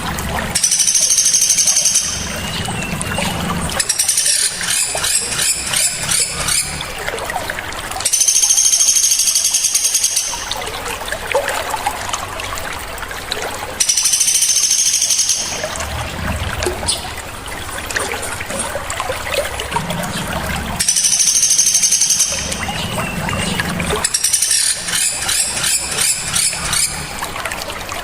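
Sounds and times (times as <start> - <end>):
running water trickling: 0.0 - 28.0
bird chattering: 0.6 - 2.9, 3.8 - 6.8, 8.1 - 10.5, 13.8 - 15.7, 20.8 - 27.1
high-pitched bird trills: 0.6 - 2.9, 3.8 - 6.8, 8.1 - 10.6, 13.8 - 15.8, 20.8 - 23.2, 24.0 - 27.1.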